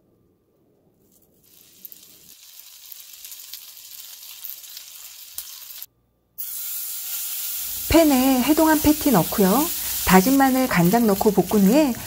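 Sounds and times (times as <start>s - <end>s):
patties sizzling in oil: 1.3s - 12.0s.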